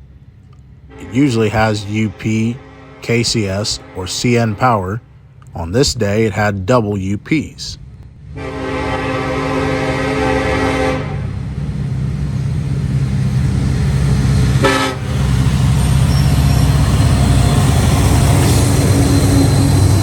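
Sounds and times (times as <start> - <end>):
train rumble passing: 0.0 - 20.0
locomotive horn: 0.9 - 5.2, 8.3 - 11.3, 14.6 - 15.2, 16.1 - 20.0.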